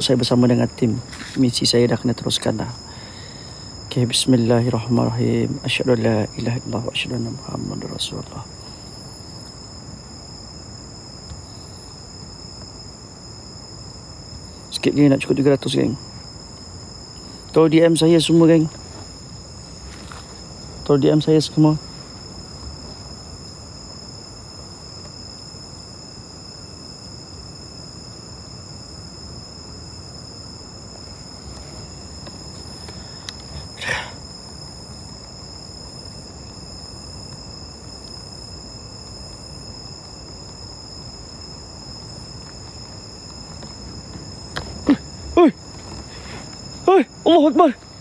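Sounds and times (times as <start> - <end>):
crickets droning: 0.0 - 48.0
low background hiss: 0.0 - 48.0.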